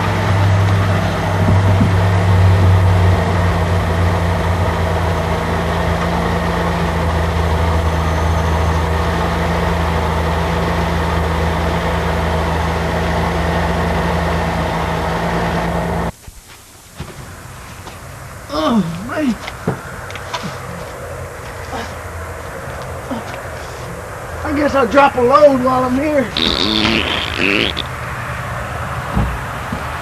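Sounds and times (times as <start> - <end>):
vehicle engine idling: 0.0 - 16.2.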